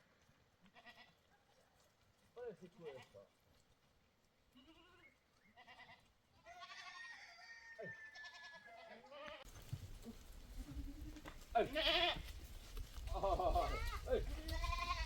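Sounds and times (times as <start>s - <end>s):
goats bleating: 0.6s - 1.2s, 4.5s - 7.2s, 8.1s - 12.4s, 13.0s - 15.0s.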